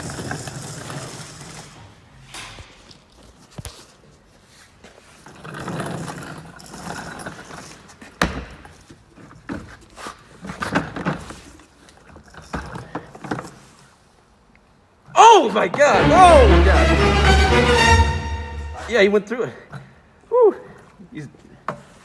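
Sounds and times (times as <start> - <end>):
knocks and rattles of car parts: 5.8 - 9.8.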